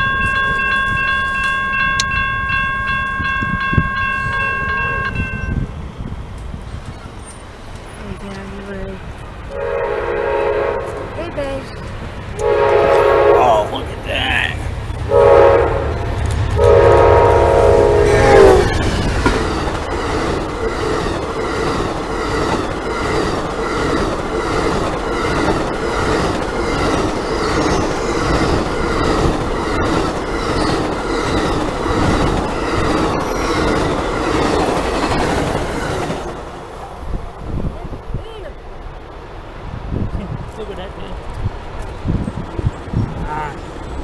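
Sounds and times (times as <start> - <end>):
train cars rumbling past: 0.0 - 44.0
train horn blast: 9.5 - 11.3, 12.4 - 13.9, 15.1 - 18.8.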